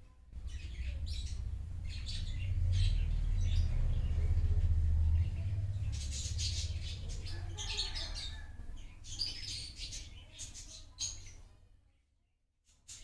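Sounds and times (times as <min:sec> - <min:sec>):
small birds chirping: 0:00.1 - 0:11.8, 0:12.7 - 0:13.0
low steady hum: 0:00.2 - 0:09.0.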